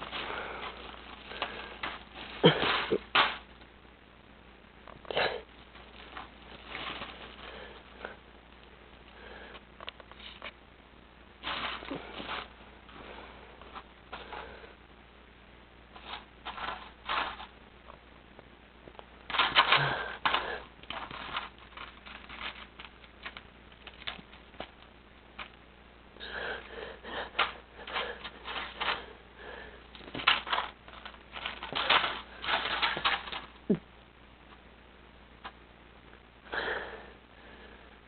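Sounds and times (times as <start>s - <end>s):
plastic bag rustling and crinkling: 0.0s - 3.7s, 5.6s - 8.0s, 11.4s - 14.4s, 19.2s - 25.6s, 29.9s - 33.8s.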